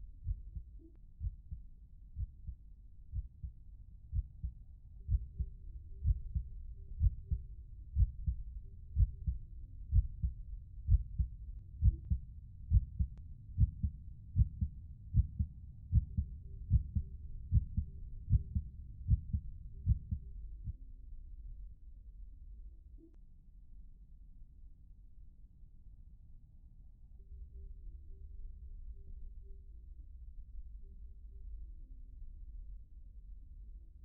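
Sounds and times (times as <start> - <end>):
heartbeat thumps: 0.2 - 1.6, 2.2 - 3.5, 4.1 - 20.8.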